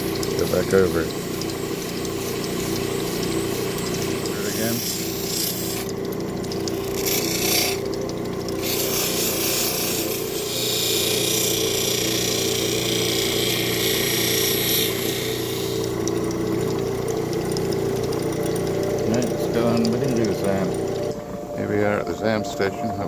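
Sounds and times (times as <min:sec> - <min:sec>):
grinding machine motor humming: 0:00.0 - 0:23.0
stone rasping on grinding wheel: 0:00.5 - 0:05.9, 0:06.5 - 0:07.9, 0:08.6 - 0:16.0.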